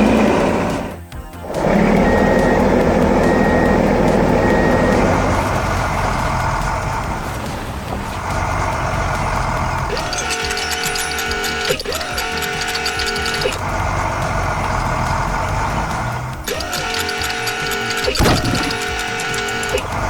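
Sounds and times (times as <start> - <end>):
music: 0.0 - 20.0
truck engine rumbling: 0.0 - 20.0
reversing beeps: 2.0 - 5.4, 9.9 - 13.6.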